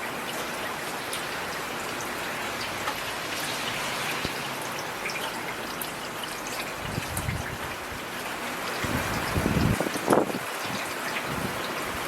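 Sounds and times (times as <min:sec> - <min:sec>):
heavy rain hissing: 0:00.0 - 0:12.0
raindrops striking close by: 0:00.0 - 0:12.0.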